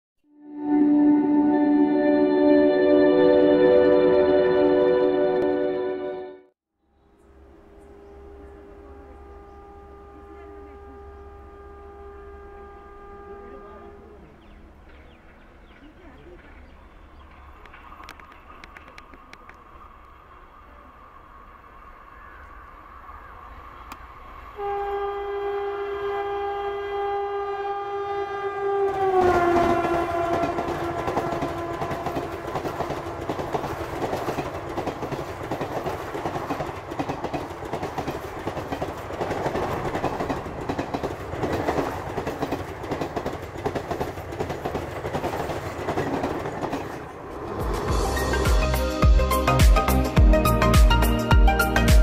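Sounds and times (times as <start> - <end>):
locomotive horn: 0.3 - 6.5, 7.4 - 14.5, 24.5 - 34.5
train wheels clacking over rail joints: 29.2 - 47.8.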